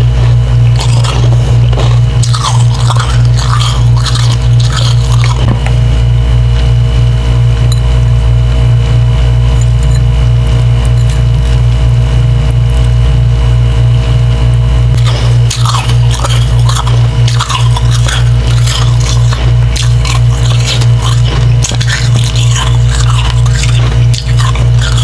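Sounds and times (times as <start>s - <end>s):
wet crunching of chewed frost: 0.0s - 5.8s, 14.9s - 25.0s
pulsing low hum: 0.0s - 25.0s.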